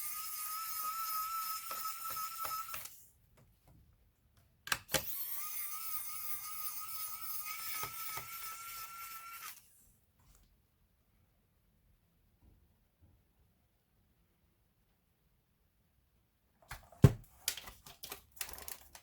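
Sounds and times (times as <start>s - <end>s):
small electric motor whining: 0.0s - 3.0s, 5.0s - 9.8s.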